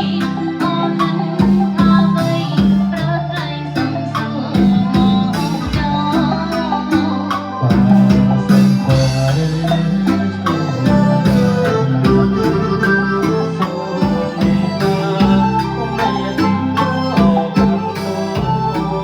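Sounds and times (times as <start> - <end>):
band playing: 0.0 - 19.0
drum kit beat: 0.0 - 19.0
person singing: 0.0 - 19.0.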